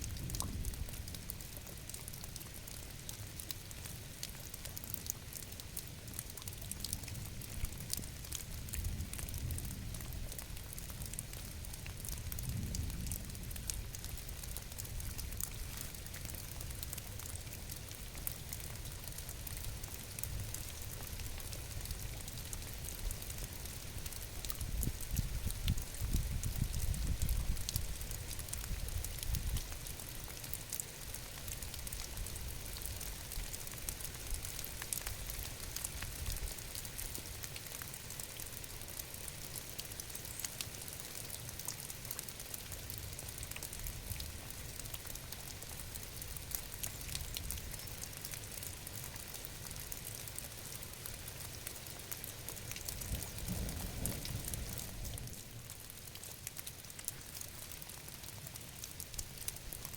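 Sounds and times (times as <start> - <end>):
rain pattering: 0.0 - 59.9.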